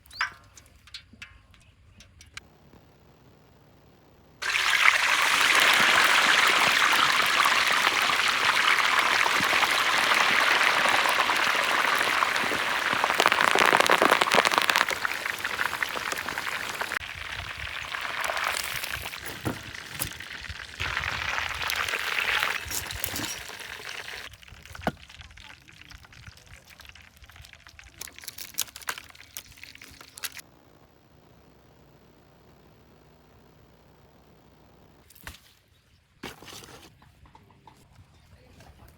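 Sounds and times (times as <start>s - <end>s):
water splashing: 4.4s - 24.3s
water pouring in a stream: 4.4s - 30.4s.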